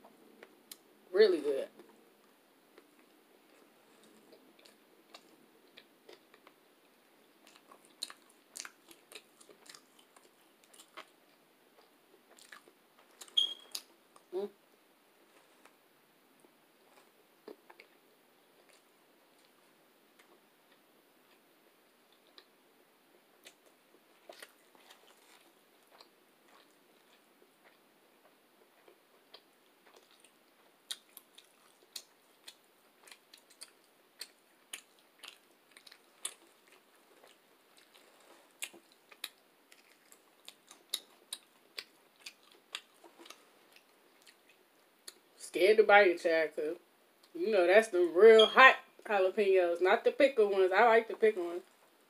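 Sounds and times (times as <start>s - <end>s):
person chewing soft food: 2.7s - 14.3s, 16.4s - 45.4s.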